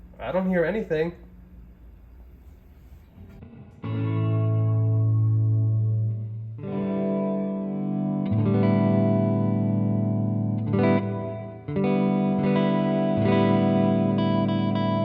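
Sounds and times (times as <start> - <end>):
electric guitar chords with reverb: 3.2 - 15.0.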